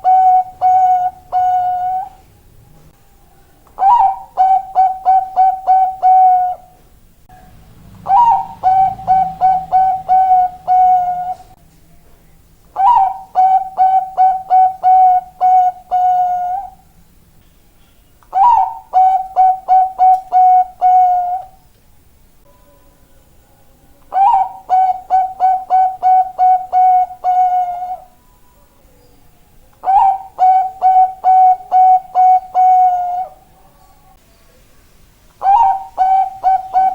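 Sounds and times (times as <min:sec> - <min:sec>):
dove cooing: 0:00.0 - 0:02.2, 0:03.8 - 0:06.8, 0:07.9 - 0:11.6, 0:12.8 - 0:16.8, 0:18.3 - 0:21.6, 0:24.1 - 0:28.2, 0:29.8 - 0:33.7, 0:35.4 - 0:36.9.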